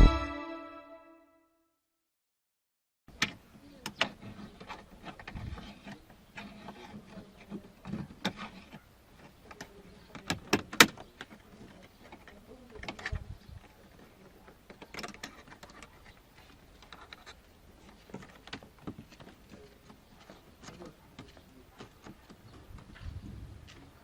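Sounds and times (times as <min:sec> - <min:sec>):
clicks and knocks of parts: 0:14.5 - 0:22.4.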